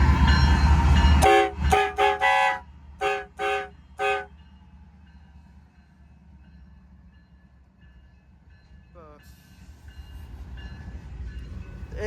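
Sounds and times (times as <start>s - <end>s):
freight train rumble: 0.0s - 12.0s
locomotive air horn blasts: 1.2s - 4.3s.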